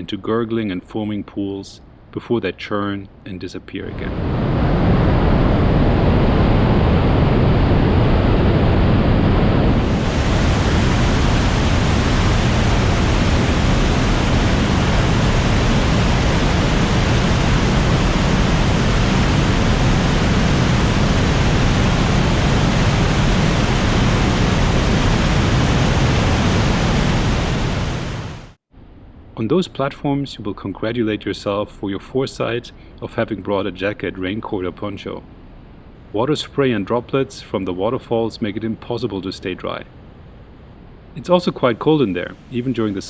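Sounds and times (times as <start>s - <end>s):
water rushing in rock gorge: 9.8s - 28.4s.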